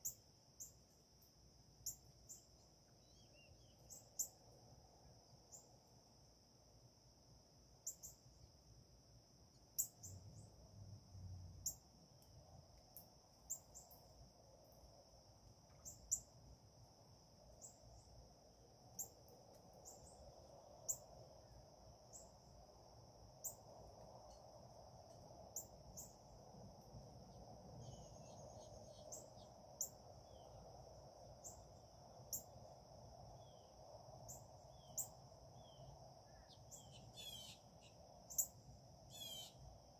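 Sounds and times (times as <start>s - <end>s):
insect drone: 0.0s - 39.9s
low bird calls: 36.4s - 37.6s, 39.1s - 39.6s.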